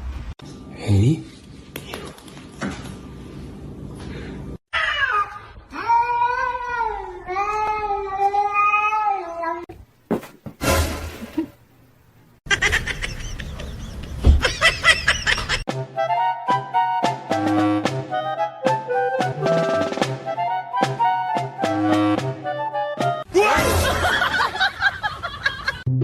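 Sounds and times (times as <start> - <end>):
music: 15.7 - 24.1.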